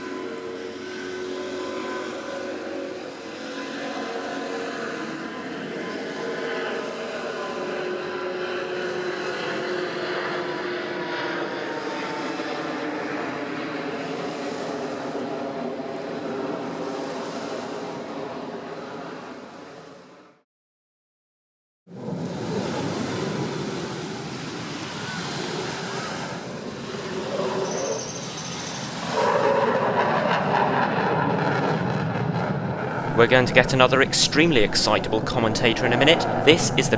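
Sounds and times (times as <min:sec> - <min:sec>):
high whine: 0:00.0 - 0:08.2, 0:32.6 - 0:36.9
jet aircraft engines: 0:00.0 - 0:20.3, 0:22.0 - 0:36.9.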